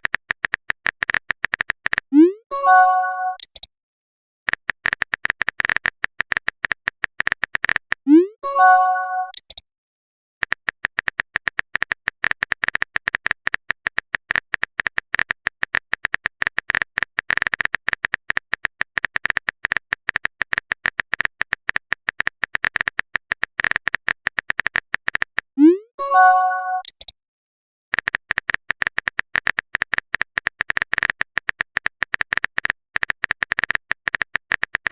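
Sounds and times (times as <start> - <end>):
phone keyboard typing clicks: 0.0 - 3.7, 4.5 - 8.0, 10.4 - 25.5, 26.2 - 27.2, 27.9 - 34.9
message chime: 2.5 - 3.4, 8.4 - 9.4, 25.6 - 26.9.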